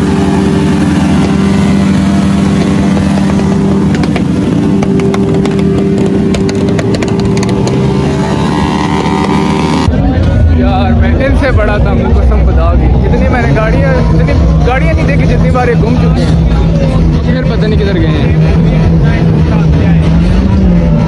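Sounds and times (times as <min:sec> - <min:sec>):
motorcycle engine high revs: 0:00.0 - 0:10.0
engine crackles: 0:00.0 - 0:21.0.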